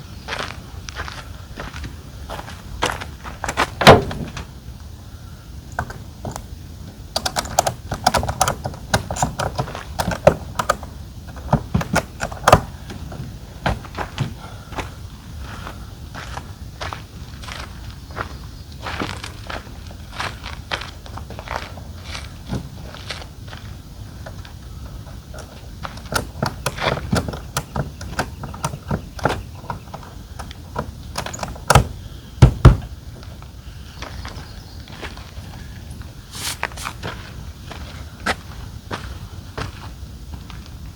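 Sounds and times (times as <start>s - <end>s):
heavy thumps: 3.7s - 4.5s, 31.5s - 32.9s
plastic or metal parts clicking: 7.2s - 12.7s, 30.4s - 31.9s.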